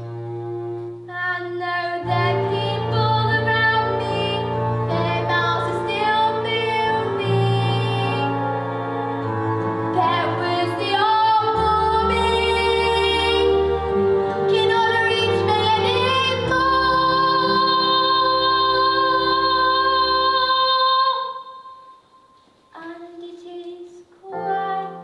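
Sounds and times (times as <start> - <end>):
instrumental backing: 0.0 - 20.7
girl singing a ballad: 22.7 - 25.0.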